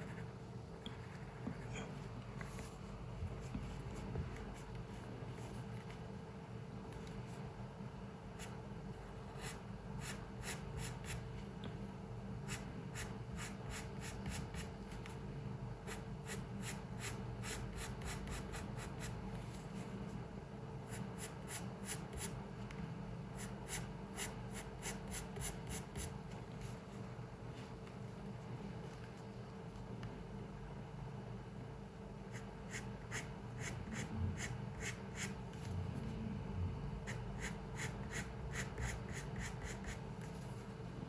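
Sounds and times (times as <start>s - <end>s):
faint room hum: 0.0s - 41.0s
drawing tool scratching on paper: 9.3s - 11.3s, 12.5s - 15.0s, 15.8s - 19.2s, 23.4s - 26.2s, 32.3s - 35.7s, 37.0s - 40.6s.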